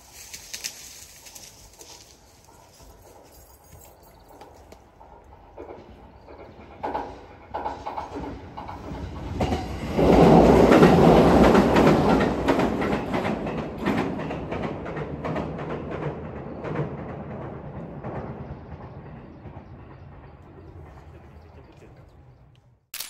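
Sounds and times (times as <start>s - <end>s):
heavy train rumble: 4.2s - 22.4s
train wheels clacking on bridge: 4.4s - 21.3s.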